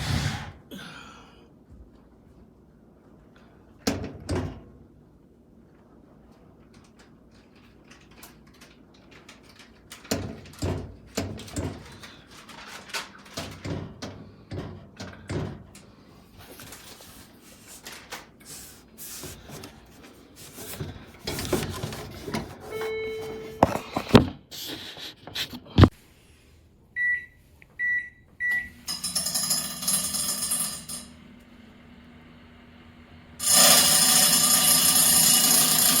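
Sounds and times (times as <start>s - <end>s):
microwave humming: 19.4s - 24.3s, 26.8s - 36.0s
short high beeps: 22.7s - 23.6s.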